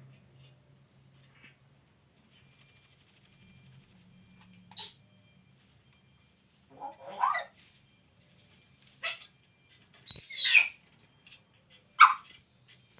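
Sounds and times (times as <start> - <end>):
parrot squawking: 6.8 - 7.6, 10.1 - 10.8, 12.0 - 12.2.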